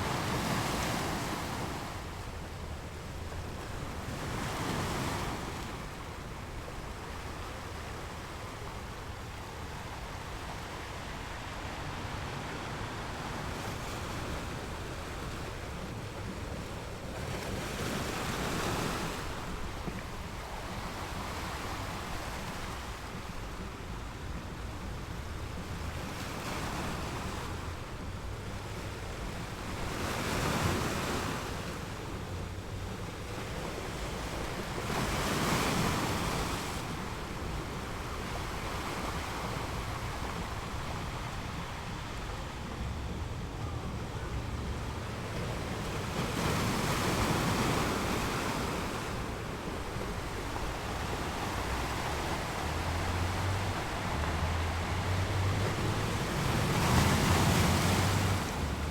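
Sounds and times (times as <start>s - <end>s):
ocean waves breaking on shore: 0.0s - 58.9s.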